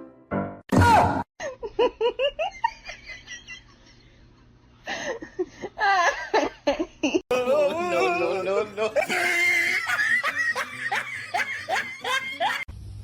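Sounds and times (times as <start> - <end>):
person laughing: 1.4 - 4.0, 4.9 - 12.7.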